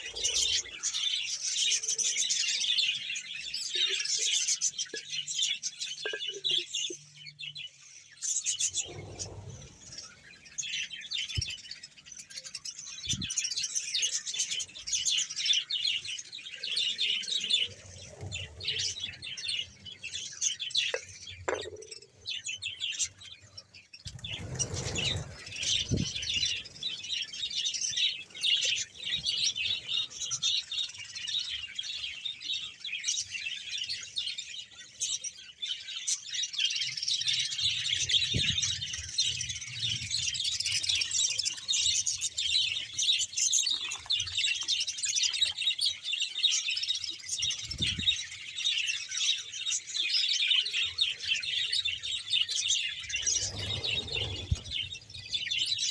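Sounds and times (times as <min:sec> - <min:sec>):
budgerigars chattering and chirping: 0:34.8 - 0:55.9.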